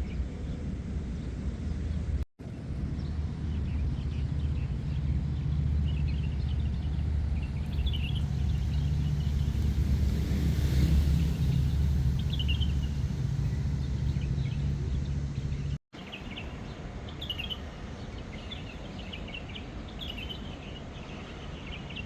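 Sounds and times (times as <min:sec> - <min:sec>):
low rumble: 0:00.0 - 0:15.8
birds chirping: 0:02.8 - 0:22.0.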